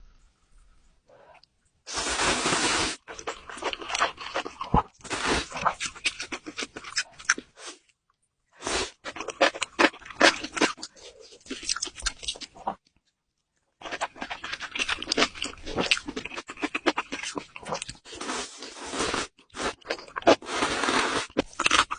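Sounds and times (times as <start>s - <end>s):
wet chewing: 3.0s - 7.6s, 8.9s - 12.8s, 13.8s - 18.2s.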